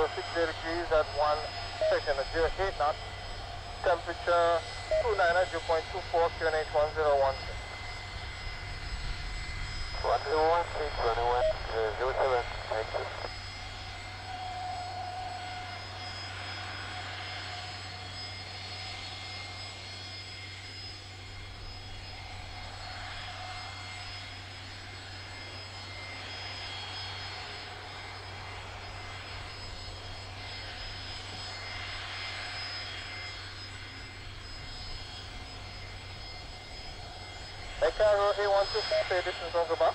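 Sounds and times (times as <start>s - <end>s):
aircraft engines running: 0.0s - 39.9s
thin high whine: 9.0s - 18.1s.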